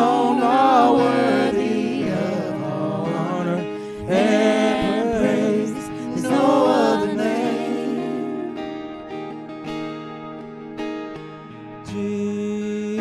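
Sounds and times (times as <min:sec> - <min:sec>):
gospel group singing in harmony: 0:00.0 - 0:09.4
instrumental backing music: 0:00.0 - 0:13.0.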